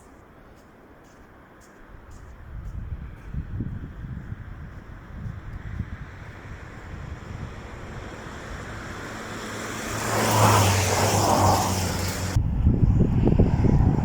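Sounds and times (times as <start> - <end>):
wind noise on microphone: 1.9 - 14.0
vehicle driving past: 5.6 - 14.0.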